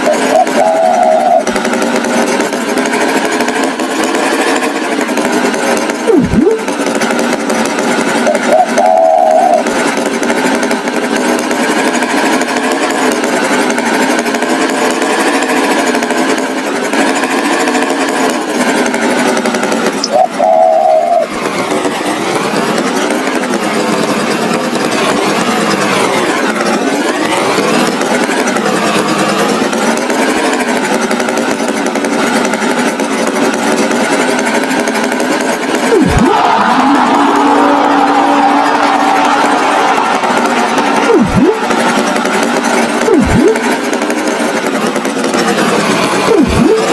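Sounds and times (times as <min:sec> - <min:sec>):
cartoon tractor engine rattling: 0:00.0 - 0:46.9.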